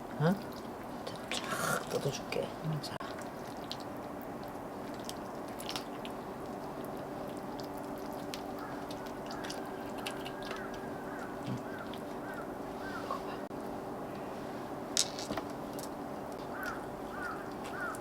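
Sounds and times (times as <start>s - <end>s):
steady low hum: 0.0s - 18.0s
person chewing: 3.1s - 12.4s.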